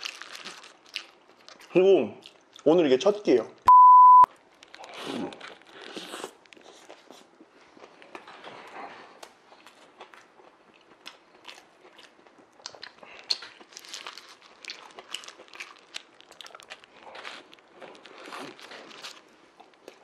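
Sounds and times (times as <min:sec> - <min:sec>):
person chewing wet mouth sounds: 0:00.0 - 0:02.7, 0:04.6 - 0:20.0
biting into sandwich: 0:04.3 - 0:20.0.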